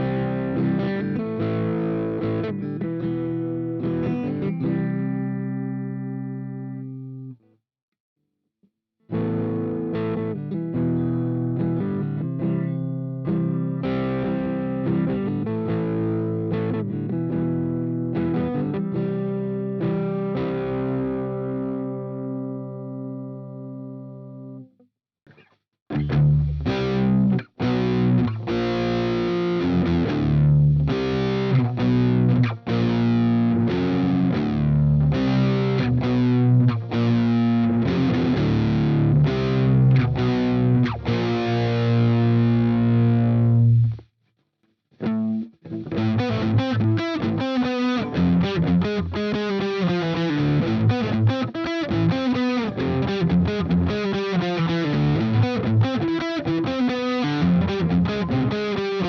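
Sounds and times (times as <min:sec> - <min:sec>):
distorted electric guitar: 0:00.0 - 0:07.4, 0:09.1 - 0:24.7, 0:25.3 - 0:44.0, 0:45.0 - 0:59.0.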